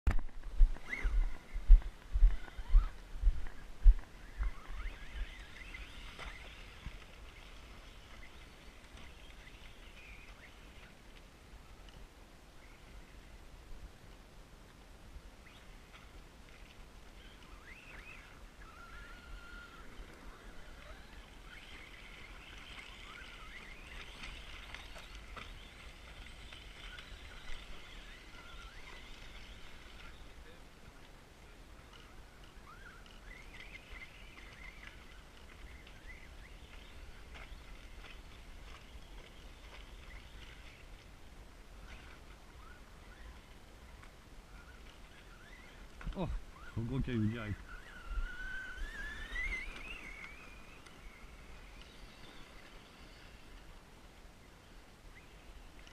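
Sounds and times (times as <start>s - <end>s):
birds chirping: 0.5s - 11.9s, 15.4s - 55.9s
toy car electric motor whining: 17.5s - 30.2s, 47.6s - 51.1s.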